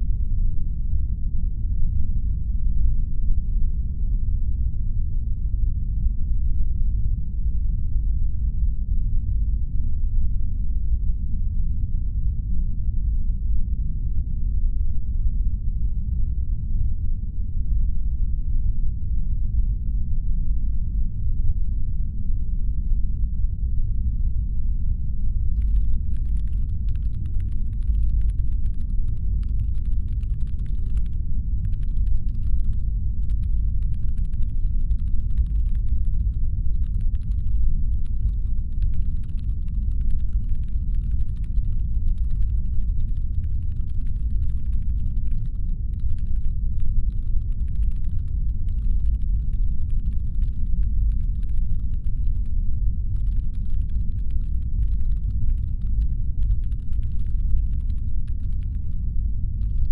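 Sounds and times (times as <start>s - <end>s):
deep engine hum rumble: 24.9s - 59.9s
rapid fine clicking: 25.6s - 52.5s, 53.2s - 59.0s, 59.6s - 59.9s.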